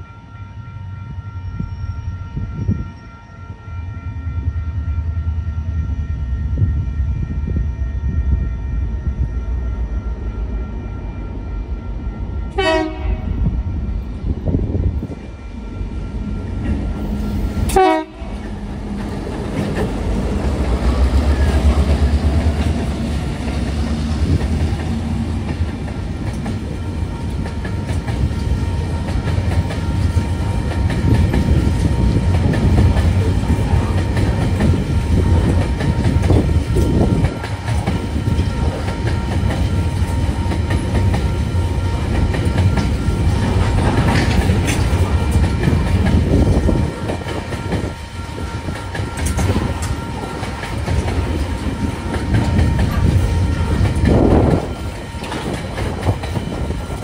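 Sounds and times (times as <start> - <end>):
diesel locomotives rumbling past: 0.0 - 57.0
clickety-clack over rail joints: 17.6 - 57.0.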